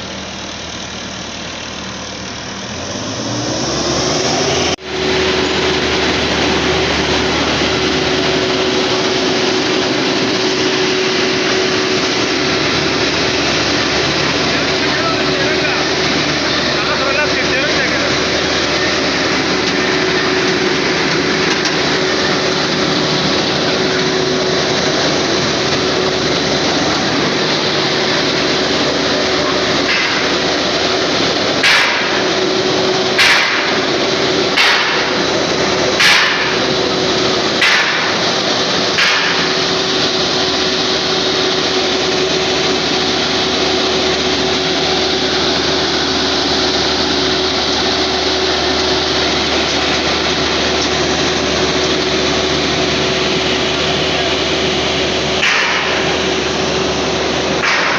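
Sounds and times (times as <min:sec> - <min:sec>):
engine running steadily: 0:00.0 - 0:57.9
sharp knocks: 0:31.6 - 0:32.2, 0:33.2 - 0:33.8, 0:34.5 - 0:35.1, 0:36.0 - 0:36.6, 0:37.6 - 0:38.2, 0:39.0 - 0:39.6, 0:55.4 - 0:56.1, 0:57.6 - 0:57.9.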